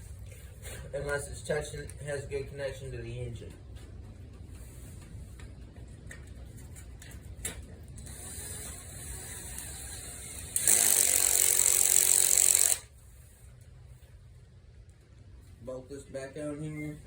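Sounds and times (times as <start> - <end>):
power driver running a bolt: 8.0 - 12.9.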